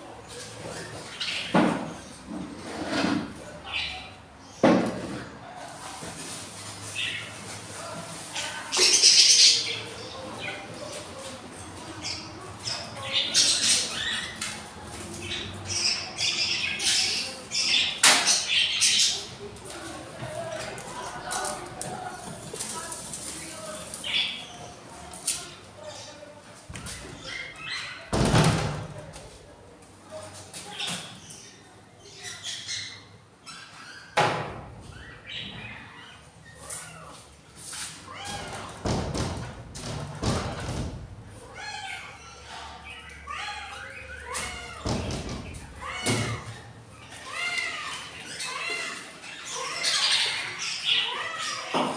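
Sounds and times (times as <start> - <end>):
budgies chirping: 3.6 - 4.6, 8.3 - 19.5, 34.8 - 37.2, 41.5 - 51.8.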